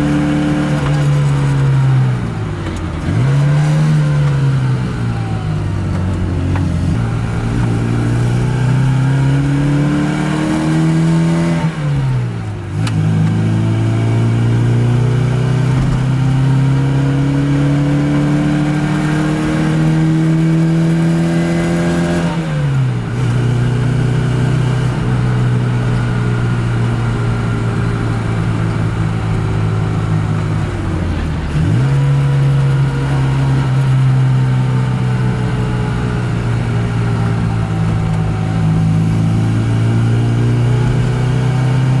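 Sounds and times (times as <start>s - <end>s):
car engine pulling with gear changes: 0.0s - 42.0s.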